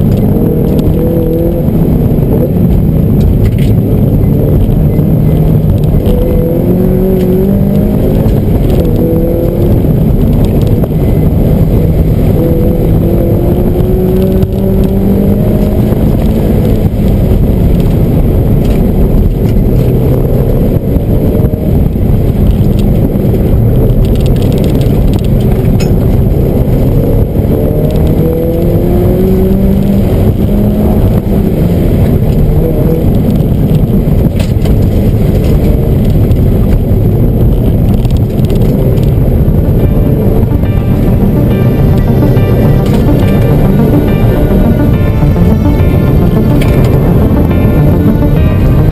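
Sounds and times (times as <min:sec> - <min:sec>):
car engine revving: 0:00.0 - 0:48.9
road and tyre noise: 0:00.0 - 0:48.9.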